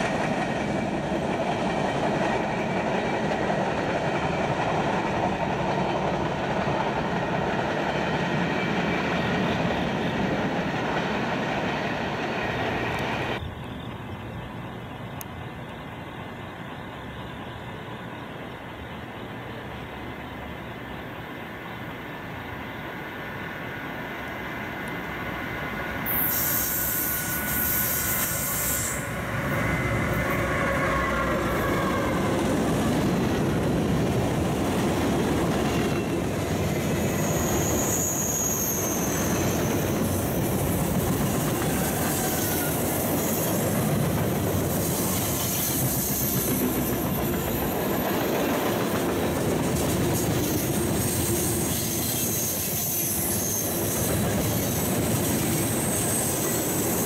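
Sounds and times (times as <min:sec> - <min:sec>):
locomotive passing: 0:00.0 - 0:57.0
train wheels rumbling and clattering: 0:00.0 - 0:57.0
high wheel squeal: 0:24.8 - 0:33.4, 0:35.7 - 0:48.8, 0:49.8 - 0:57.0.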